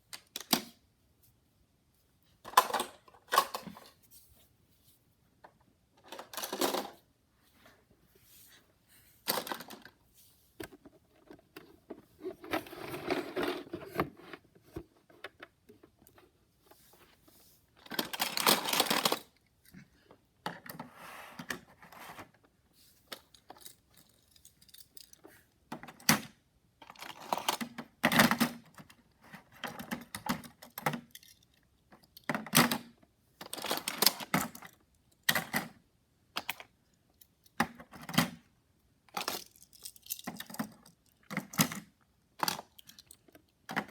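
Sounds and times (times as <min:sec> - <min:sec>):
toy cars clicking and clattering: 0:17.8 - 0:19.4, 0:23.1 - 0:26.0, 0:26.8 - 0:28.9, 0:29.6 - 0:35.8, 0:39.1 - 0:43.9.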